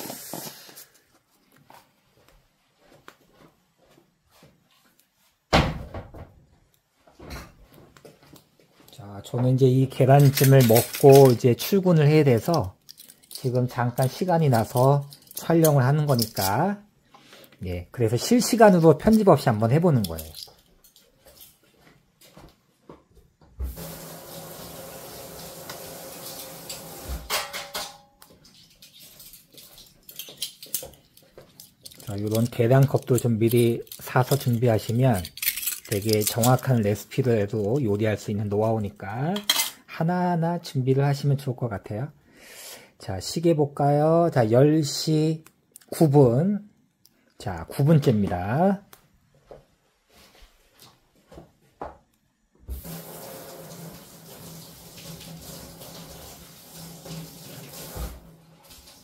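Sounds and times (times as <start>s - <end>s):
dishes and utensils clinking: 27.2s - 34.6s, 39.4s - 39.8s
dishes clattering: 27.3s - 29.1s.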